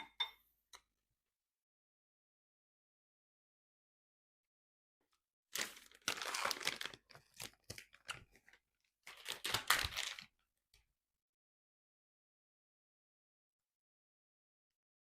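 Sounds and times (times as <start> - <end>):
food packaging tearing: 5.6 - 10.3
packaging crinkling: 5.6 - 10.3.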